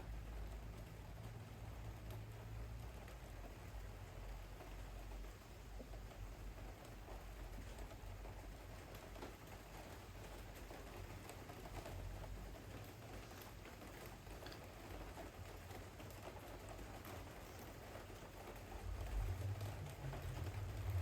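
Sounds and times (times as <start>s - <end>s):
torrential rain hissing: 1.4s - 21.0s
low rumble: 18.8s - 21.0s.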